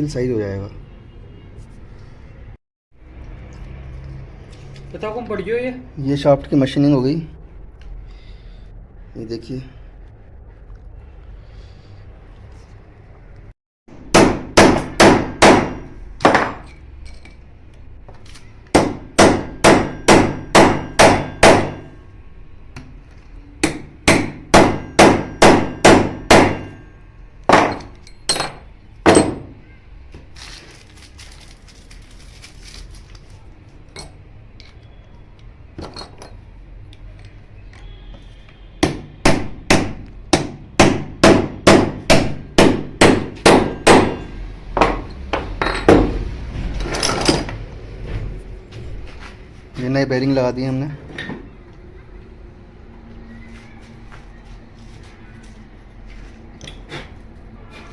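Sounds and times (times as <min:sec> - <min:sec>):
hammer striking metal: 0:14.1 - 0:16.8, 0:18.7 - 0:22.0, 0:23.6 - 0:26.9, 0:38.8 - 0:46.2.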